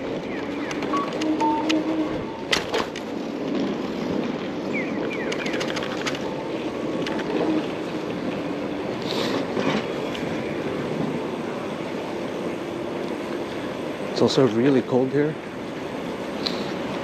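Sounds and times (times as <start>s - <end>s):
bike clicks and rattles: 0.0s - 10.3s.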